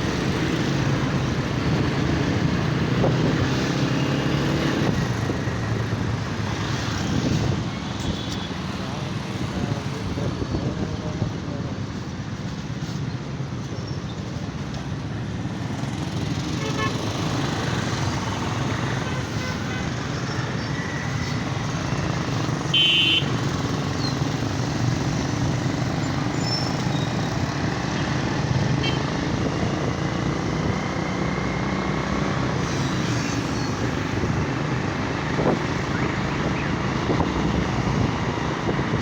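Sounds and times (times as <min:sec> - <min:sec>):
motorcycle engine and wind rumble: 0:00.0 - 0:39.0
traffic noise: 0:00.0 - 0:39.0
vehicle horn: 0:16.6 - 0:17.0, 0:22.7 - 0:23.4, 0:28.8 - 0:29.0.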